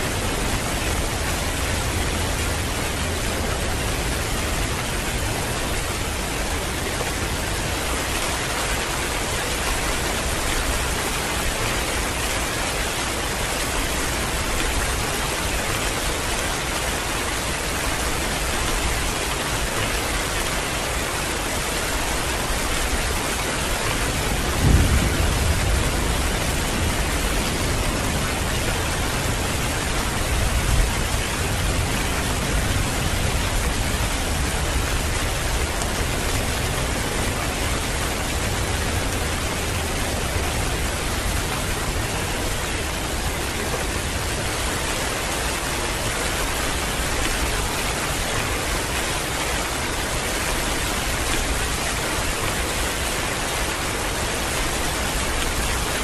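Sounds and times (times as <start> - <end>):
heavy rain: 0.0 - 56.0
thunder rumbling: 24.2 - 41.2.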